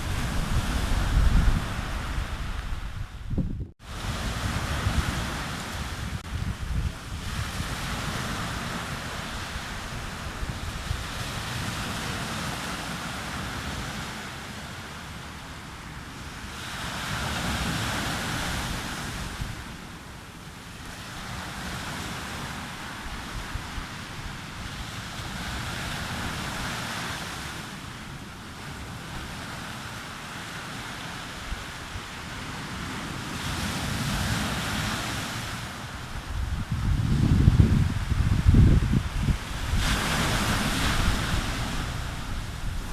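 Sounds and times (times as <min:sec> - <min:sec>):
wind buffeting microphone: 0:00.0 - 0:12.6, 0:36.0 - 0:42.9
waves breaking on a beach: 0:00.0 - 0:42.9.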